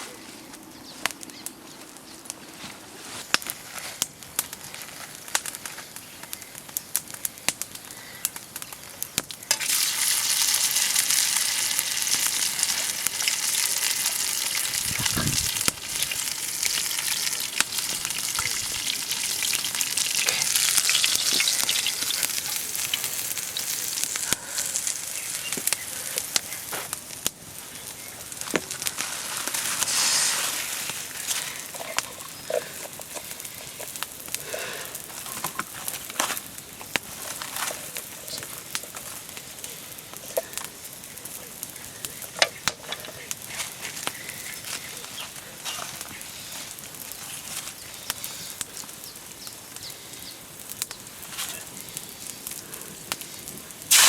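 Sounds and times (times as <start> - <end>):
oil crackling: 3.3 - 54.0
food sizzling in hot oil: 9.4 - 27.3, 28.0 - 35.7, 53.4 - 54.0.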